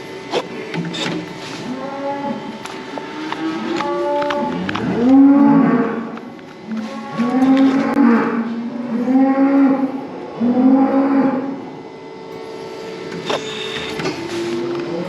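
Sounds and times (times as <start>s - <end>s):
cows mooing: 1.6s - 11.8s.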